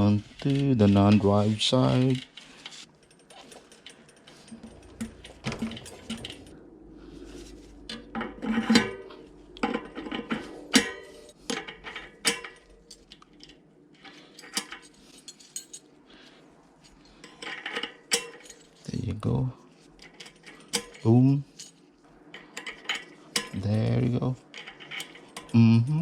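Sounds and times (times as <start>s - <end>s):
metal parts clinking: 0.4s - 6.6s, 7.3s - 16.0s, 16.9s - 19.1s, 19.7s - 25.8s
loud metal clanks: 3.7s - 6.7s.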